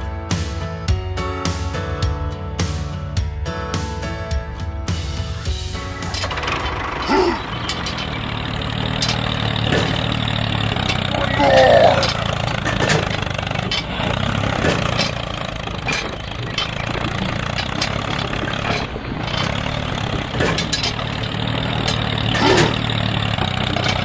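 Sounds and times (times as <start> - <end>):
tractor engine idling: 4.9 - 24.0
light irregular clanks: 5.7 - 24.0.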